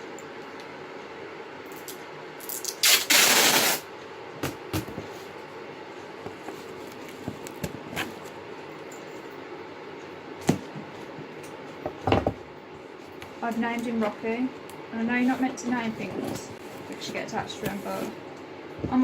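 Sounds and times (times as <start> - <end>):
packing tape ripping: 2.4 - 3.9.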